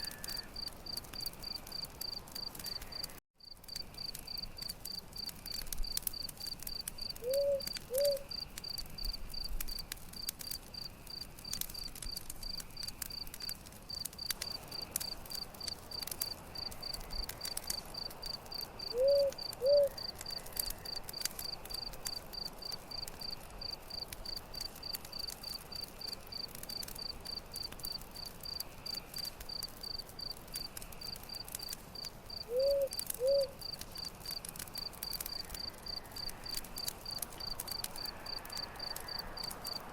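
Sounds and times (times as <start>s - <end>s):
campfire crackling and popping: 0.0s - 39.9s
crickets chirping: 16.6s - 39.9s.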